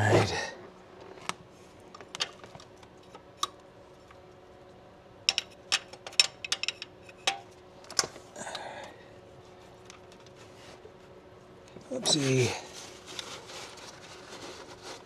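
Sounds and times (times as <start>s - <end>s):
hand tools and metal parts clicking: 5.3s - 8.1s.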